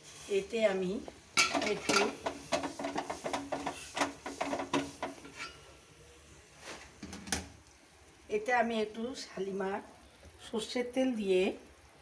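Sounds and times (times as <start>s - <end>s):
pots and utensils clinking: 1.4s - 5.8s.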